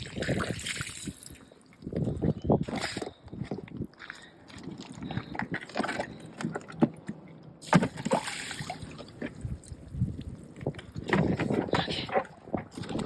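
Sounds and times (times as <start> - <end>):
water pouring: 0.0 - 1.9, 7.9 - 9.2
water sloshing and splashing: 0.0 - 13.0.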